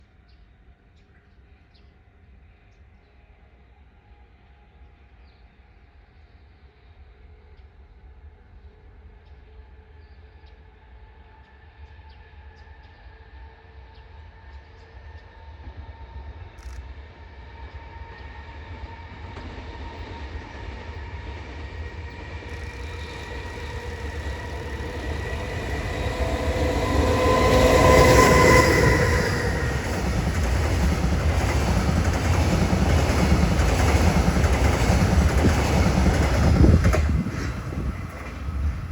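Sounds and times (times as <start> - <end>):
electric locomotive whine: 17.6 - 38.9.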